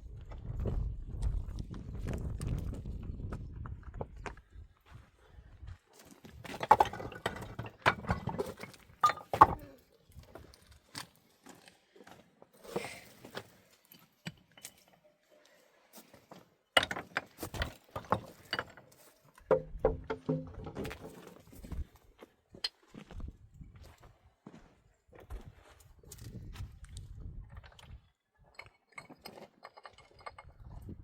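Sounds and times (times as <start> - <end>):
hard objects knocking and clinking: 6.6 - 9.7, 19.4 - 21.2.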